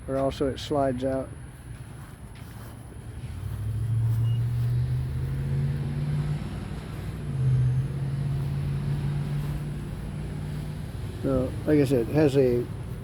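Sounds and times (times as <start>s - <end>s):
vehicle engine accelerating: 3.1s - 13.0s.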